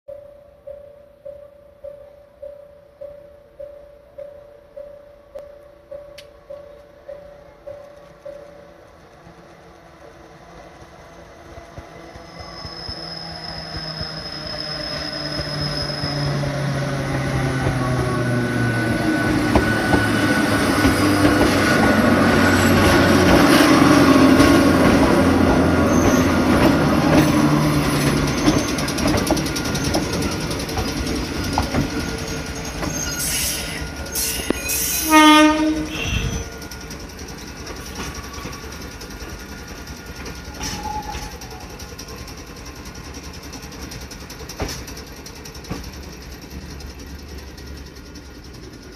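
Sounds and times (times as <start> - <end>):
electric train running noise: 3.6 - 48.9
high wheel squeal: 11.0 - 43.9
train horn blast: 33.3 - 36.6.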